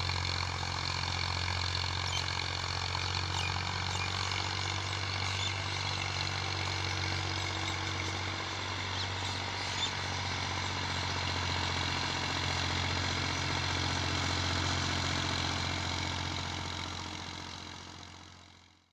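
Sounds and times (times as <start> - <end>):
tractor diesel engine running: 0.0 - 18.9.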